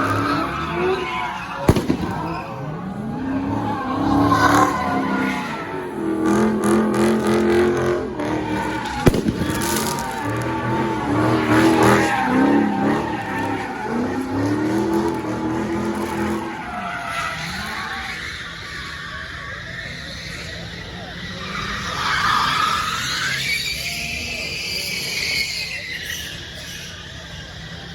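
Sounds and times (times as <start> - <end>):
car engine revving hard: 0.0 - 17.7
tyre squeal: 0.0 - 27.9
sharp crack: 1.1 - 5.6, 8.5 - 15.3.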